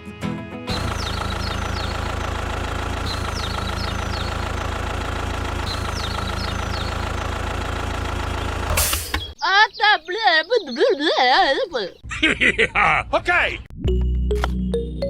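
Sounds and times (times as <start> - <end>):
music: 0.0 - 0.8, 13.8 - 15.0
engine idling: 0.7 - 9.4.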